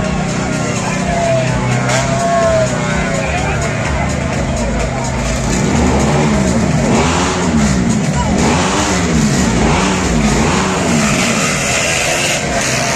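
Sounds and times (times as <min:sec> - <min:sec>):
motorcycle engine revving: 0:04.0 - 0:12.9.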